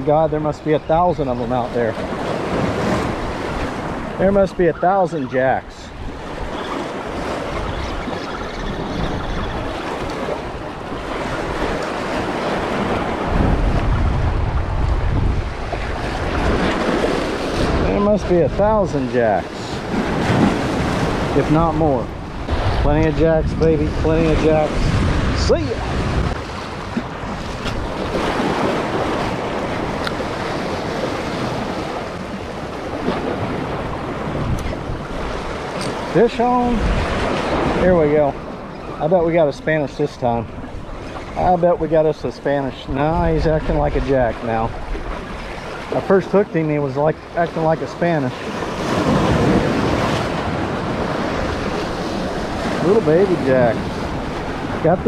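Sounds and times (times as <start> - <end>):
wind buffeting microphone: 0.0 - 46.0, 48.3 - 55.0
waves breaking against rocks: 0.0 - 55.0
surf breaking against rocks: 47.4 - 55.0.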